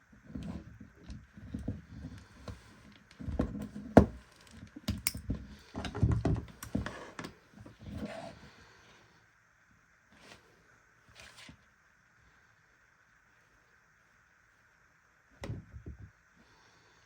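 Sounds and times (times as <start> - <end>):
handling taps and knocks: 3.2 - 7.3.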